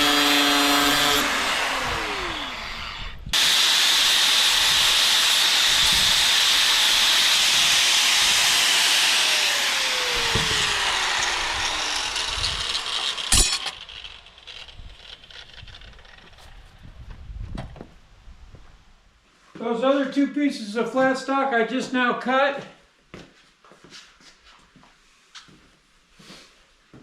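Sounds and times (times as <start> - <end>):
cut-off wheel grinding steel: 0.0 - 16.8.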